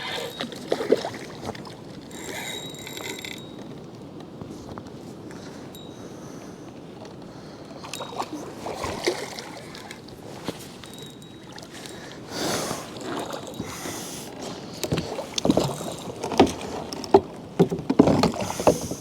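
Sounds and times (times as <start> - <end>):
water splashing: 0.0 - 2.0, 8.0 - 10.1
knocks against a kayak: 14.8 - 19.0.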